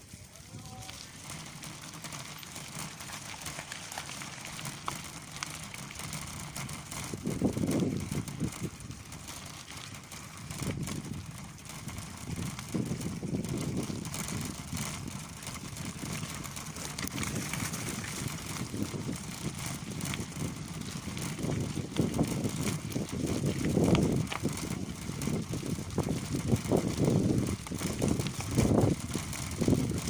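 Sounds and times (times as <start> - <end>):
bicycle rattling: 0.0 - 30.0
wind buffeting microphone: 6.0 - 30.0.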